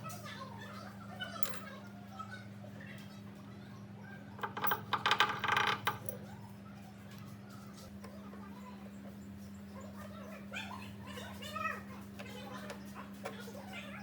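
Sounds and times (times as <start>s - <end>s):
metal pieces clinking: 1.4s - 1.7s, 4.4s - 6.2s.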